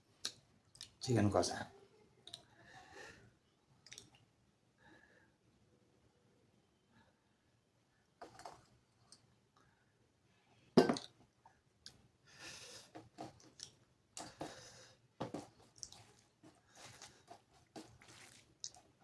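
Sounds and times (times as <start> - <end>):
chewing food: 0.2 - 1.0, 3.8 - 4.2, 13.0 - 14.7, 15.3 - 19.0
wet mouth clicks: 3.8 - 4.2, 13.4 - 14.3.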